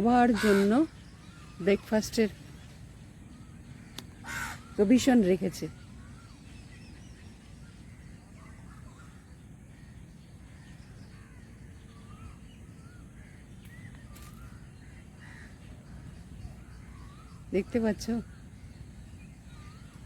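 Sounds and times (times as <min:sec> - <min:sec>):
wild birds calling: 0:00.0 - 0:20.0
crow-like caws: 0:00.3 - 0:00.9, 0:04.2 - 0:05.0.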